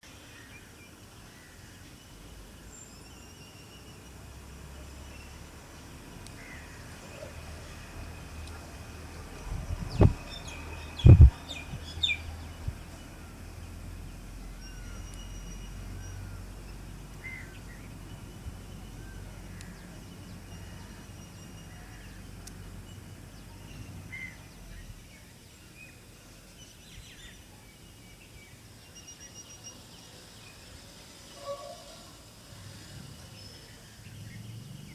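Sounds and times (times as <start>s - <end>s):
songbirds chirping: 0.0s - 34.9s
low background rumble: 7.9s - 14.6s
loud thumps: 9.5s - 10.2s, 11.0s - 11.8s.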